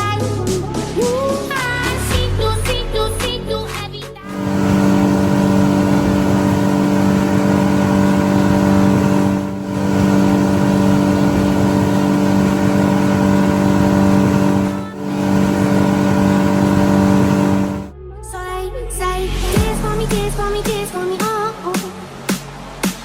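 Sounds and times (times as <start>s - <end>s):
engine drone: 4.2s - 18.6s.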